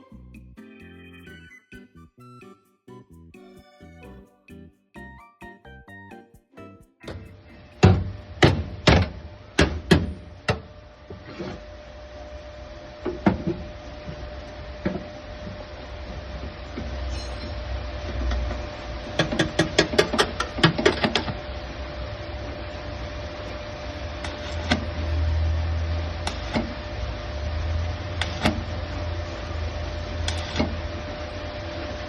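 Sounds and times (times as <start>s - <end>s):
steady hum: 7.0s - 19.2s.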